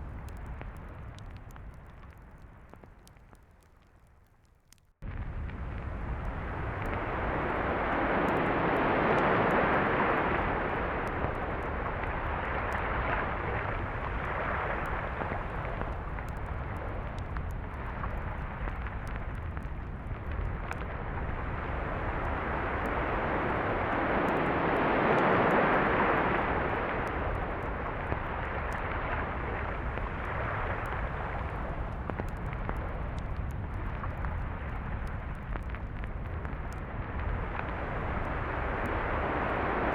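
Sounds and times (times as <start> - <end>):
low rumble: 5.0 - 39.9
sea waves washing onto beach: 6.5 - 19.9, 21.4 - 35.2, 37.5 - 39.9.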